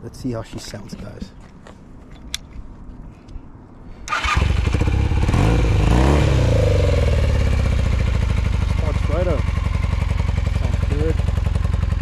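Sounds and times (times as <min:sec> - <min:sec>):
motorcycle engine starting: 0:04.0 - 0:12.0.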